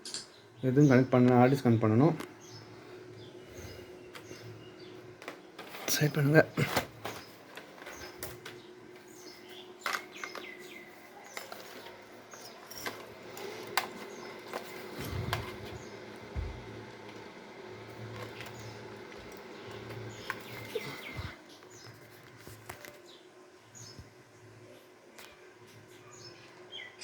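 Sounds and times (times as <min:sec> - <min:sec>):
clicks and knocks of handling equipment: 0:05.2 - 0:15.8
low hum: 0:12.7 - 0:21.4.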